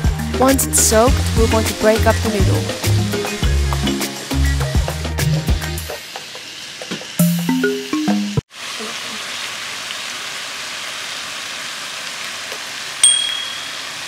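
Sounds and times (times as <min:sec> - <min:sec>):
food sizzling in a frying pan: 0:00.2 - 0:07.5, 0:08.5 - 0:14.0.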